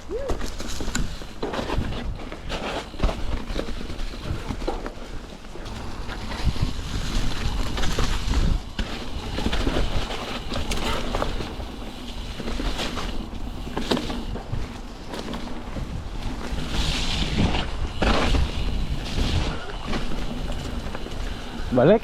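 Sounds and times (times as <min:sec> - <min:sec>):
bike rattling and knocking: 0:00.0 - 0:22.0
tyres rolling through mud and snow: 0:00.0 - 0:22.0
wind rushing over microphone: 0:05.6 - 0:22.0.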